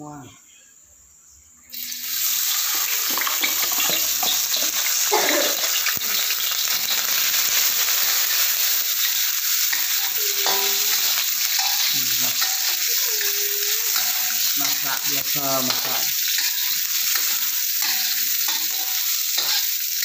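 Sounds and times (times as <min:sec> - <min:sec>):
food sizzling in hot oil: 0:01.7 - 0:20.0
metal ladle scraping a pan: 0:08.8 - 0:13.3, 0:13.9 - 0:19.7.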